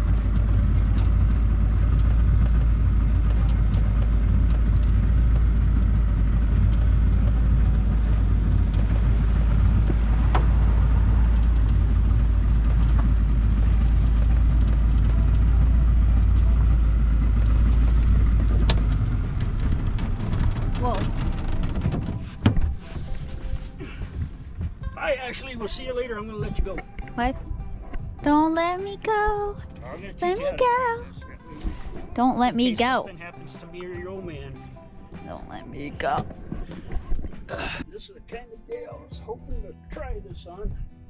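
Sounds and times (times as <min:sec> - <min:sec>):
wind buffeting microphone: 0:00.0 - 0:29.7, 0:34.8 - 0:37.5
motorboat engine rumble: 0:00.0 - 0:38.4.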